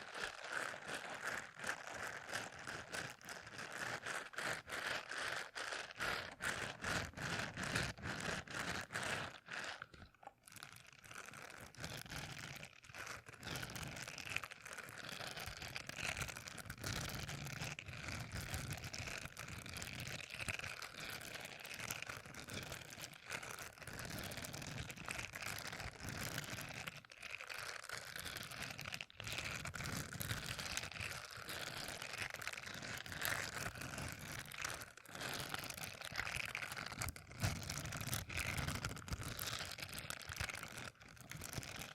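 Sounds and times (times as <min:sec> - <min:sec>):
crinkly rustle: 0:19.8 - 0:41.9.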